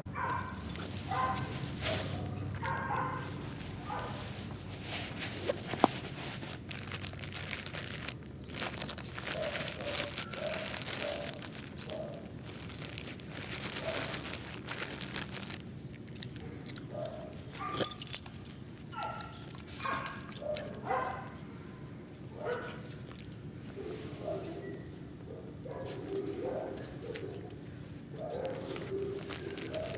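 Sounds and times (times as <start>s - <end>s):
crinkling rustling handling noise: 0.1s - 29.9s
puppy yipping and whining: 0.2s - 4.2s, 22.3s - 23.3s.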